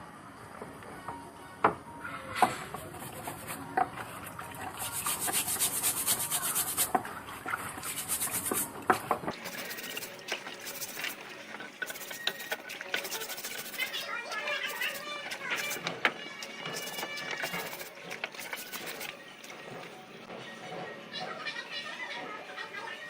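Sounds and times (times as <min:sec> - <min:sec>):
hand rubbing rusty scissors: 0:04.8 - 0:06.9, 0:07.9 - 0:08.6, 0:09.4 - 0:11.2, 0:11.8 - 0:14.0, 0:16.7 - 0:19.6.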